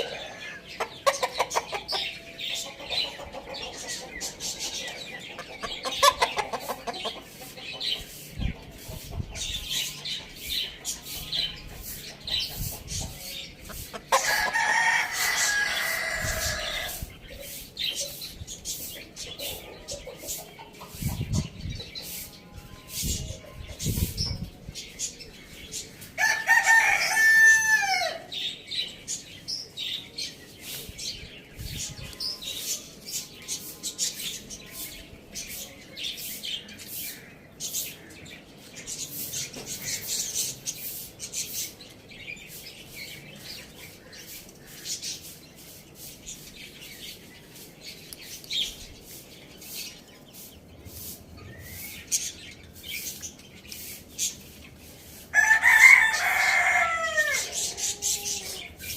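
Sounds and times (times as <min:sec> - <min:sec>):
small birds chirping: 0:00.0 - 0:58.9
rooster crowing: 0:26.2 - 0:28.3, 0:55.3 - 0:58.6.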